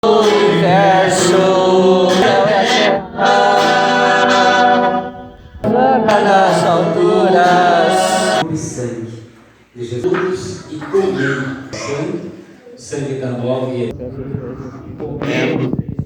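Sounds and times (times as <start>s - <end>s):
voices singing a slow hymn: 0.0s - 8.4s.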